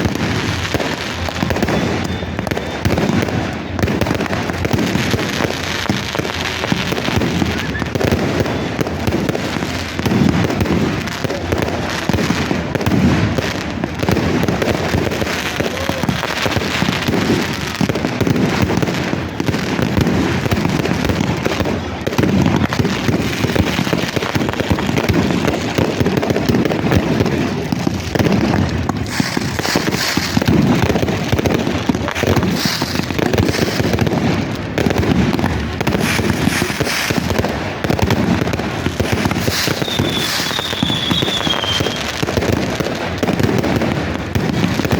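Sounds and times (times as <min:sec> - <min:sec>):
fireworks crackling and popping: 0:00.0 - 0:44.9.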